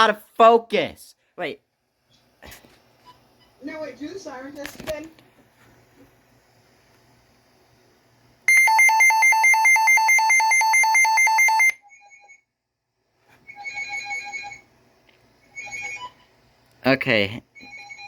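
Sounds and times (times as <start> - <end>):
weather radio siren alarm: 8.5 - 11.8.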